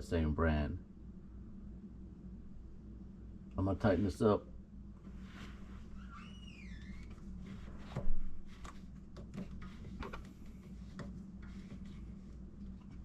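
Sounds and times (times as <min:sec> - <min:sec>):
short squeak: 0:05.9 - 0:07.1.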